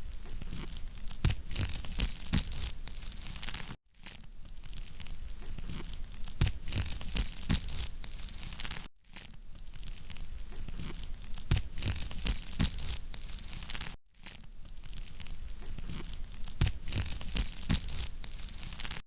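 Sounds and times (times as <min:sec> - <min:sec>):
campfire crackling and popping: 0:04.7 - 0:08.9, 0:14.8 - 0:19.0.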